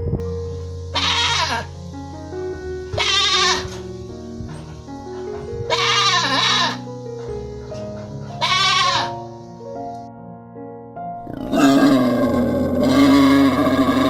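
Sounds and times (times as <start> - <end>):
background music with held notes: 0.0 - 14.0
animal bleating: 0.9 - 1.7, 2.9 - 3.8, 5.7 - 6.9, 8.2 - 9.2, 11.3 - 14.0.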